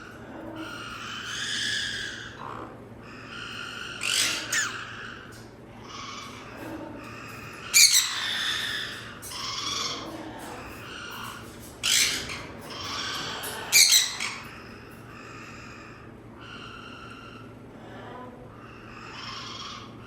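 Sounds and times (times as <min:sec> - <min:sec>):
parrot drawn-out calls: 0:00.6 - 0:06.5
parrot squawks: 0:00.6 - 0:06.6, 0:07.5 - 0:10.1, 0:11.0 - 0:14.6, 0:18.8 - 0:20.0.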